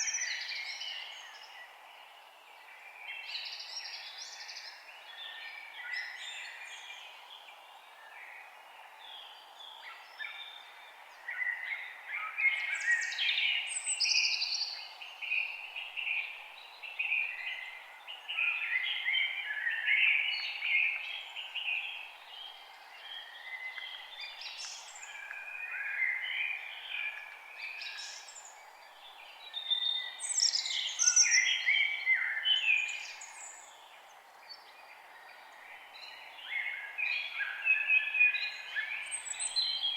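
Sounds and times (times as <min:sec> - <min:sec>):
faint background hiss: 0:00.0 - 0:39.9
birds singing and chirping: 0:09.1 - 0:39.9.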